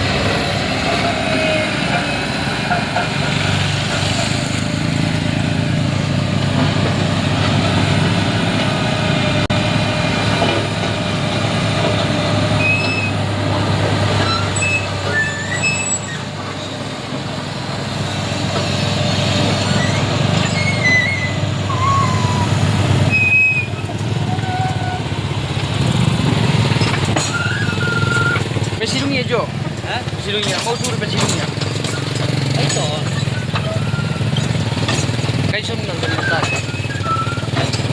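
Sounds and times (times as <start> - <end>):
heavy diesel engines running: 0.0 - 37.9
high-pitched squeaks: 14.2 - 16.4, 19.6 - 25.1, 26.8 - 29.0, 30.3 - 37.9.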